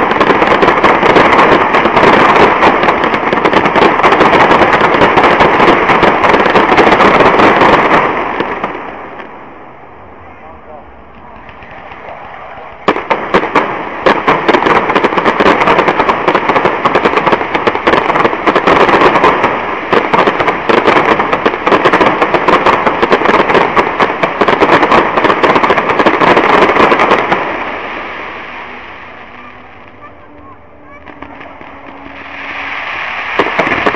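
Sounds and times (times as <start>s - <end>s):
fireworks bangs and crackles: 0.0s - 10.1s, 10.7s - 33.9s
low rumble: 9.0s - 12.9s, 27.4s - 33.9s.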